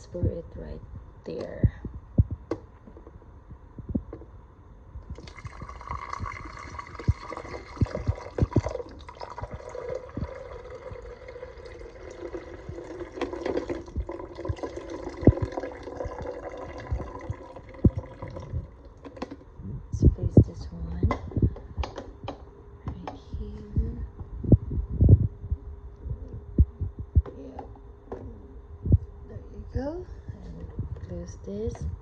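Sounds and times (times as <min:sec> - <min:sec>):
water pouring into reservoir: 0:05.1 - 0:19.4.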